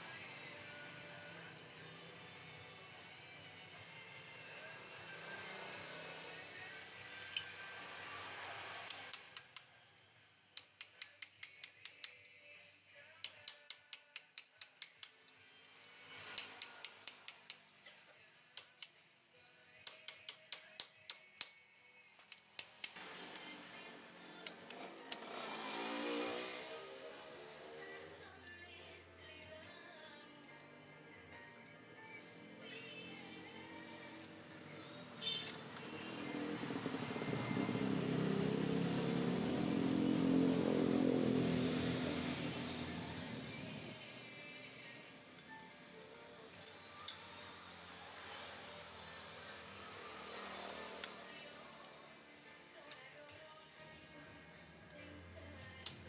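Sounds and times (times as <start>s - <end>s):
sharp metallic clicks: 13.2s - 15.4s, 16.4s - 17.6s, 22.3s - 23.0s
small motorcycle engine running: 24.6s - 28.2s, 35.2s - 44.0s.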